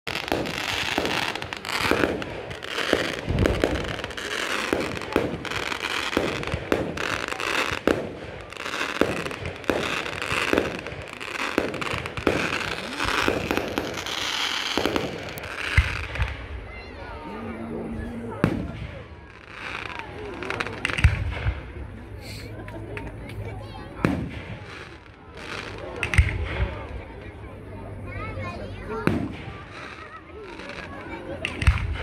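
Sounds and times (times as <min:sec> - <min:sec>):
fireworks bangs and pops: 0:00.0 - 0:16.9, 0:17.7 - 0:27.6, 0:28.2 - 0:32.0
crackling hiss of ground fountains: 0:00.1 - 0:16.9, 0:18.4 - 0:32.0
deep firework boom: 0:00.2 - 0:04.1.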